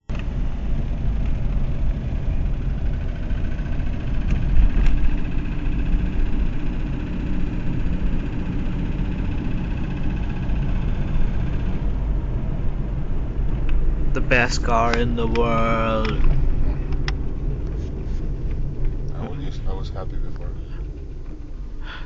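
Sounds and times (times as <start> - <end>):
engine and road rumble: 0.0 - 22.0.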